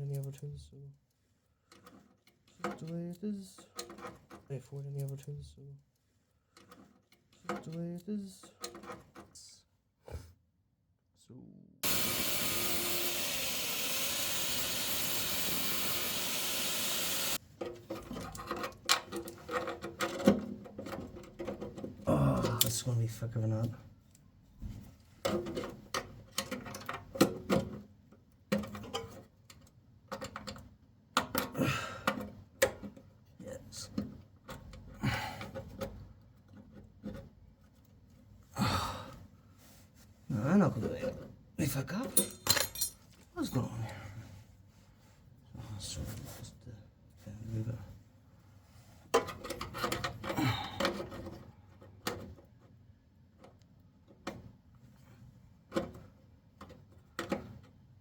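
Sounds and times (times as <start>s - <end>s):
welder sizzling hiss: 11.8s - 17.4s
person breathing out heavily: 38.6s - 39.2s
metal and tools clicking: 42.0s - 43.0s.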